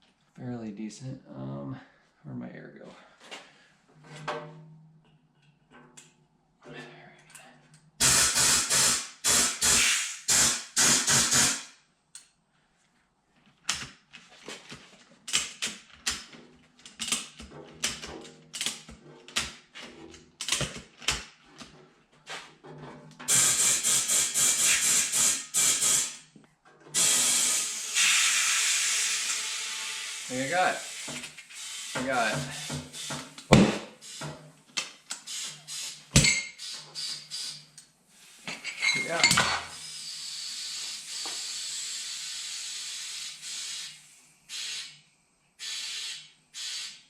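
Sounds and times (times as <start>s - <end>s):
compressed air blasting from hose: 8.0s - 11.7s, 23.3s - 26.2s, 27.0s - 34.4s, 35.2s - 37.6s, 39.7s - 45.0s, 45.6s - 47.0s.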